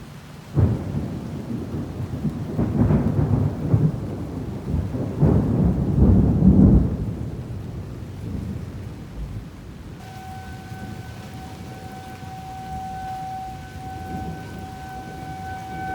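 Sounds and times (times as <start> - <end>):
rain hiss: 0.0 - 15.9
tornado warning siren: 0.6 - 7.1, 10.0 - 15.9
thunder rumbling: 0.6 - 15.9.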